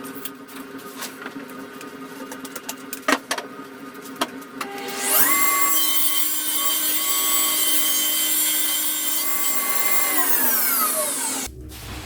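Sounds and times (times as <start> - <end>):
power saw cutting wood: 4.6 - 11.5.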